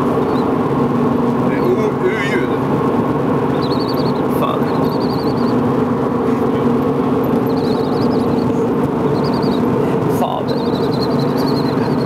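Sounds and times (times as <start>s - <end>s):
high warbling chirp: 0.0s - 0.6s, 3.5s - 5.7s, 7.2s - 12.0s
car engine droning: 0.0s - 12.0s.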